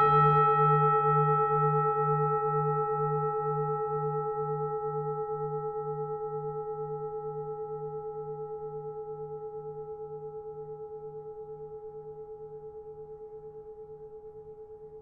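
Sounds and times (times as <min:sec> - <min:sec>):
singing bowl ringing: 0:00.0 - 0:06.7.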